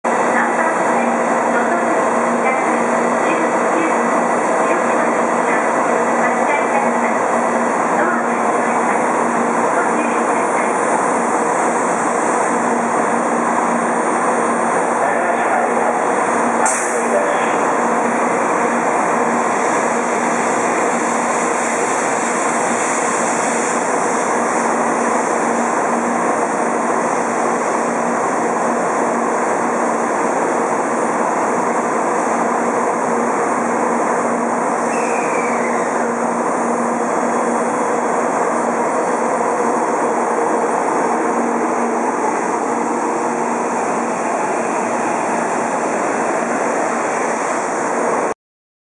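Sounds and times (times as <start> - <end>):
train running with low hum: 0.1 - 48.3
short falling squeal: 34.8 - 36.0.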